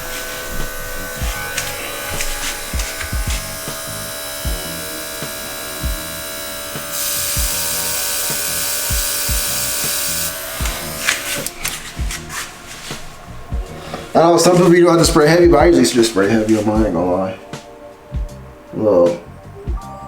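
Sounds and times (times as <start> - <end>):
air compressor motor buzz: 0.0 - 12.1
airbrush spray hiss: 0.0 - 14.7
background music with beat: 0.0 - 20.0.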